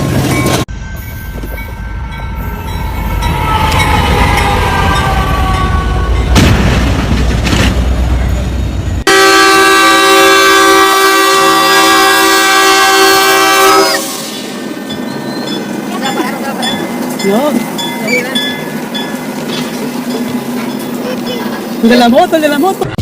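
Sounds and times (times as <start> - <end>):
train rumbling past: 0.0 - 23.0
train horn: 3.0 - 6.3, 9.1 - 14.4
multi-note train horn: 9.1 - 14.4.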